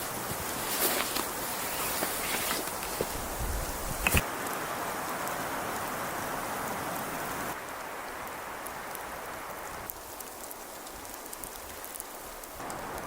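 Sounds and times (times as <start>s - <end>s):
rain-like hiss: 0.0s - 13.0s
faint ticks: 9.8s - 13.0s.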